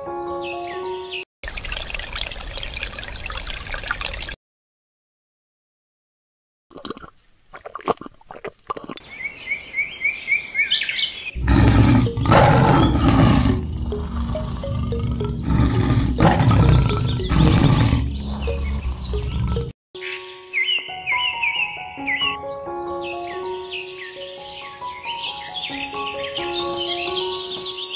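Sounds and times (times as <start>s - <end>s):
birds chirping: 9.0s - 27.9s
tiger roaring: 11.4s - 19.7s.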